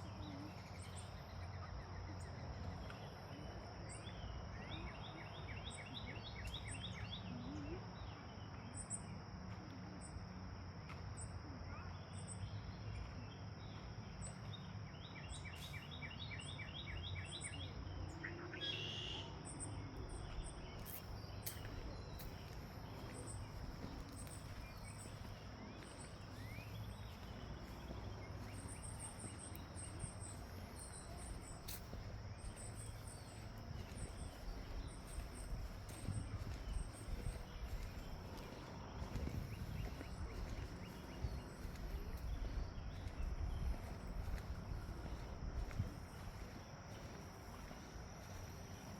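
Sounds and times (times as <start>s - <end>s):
insects chirping: 0.0s - 48.9s
bird singing a rapid trill: 11.7s - 45.3s
steady low rumble: 19.9s - 48.9s.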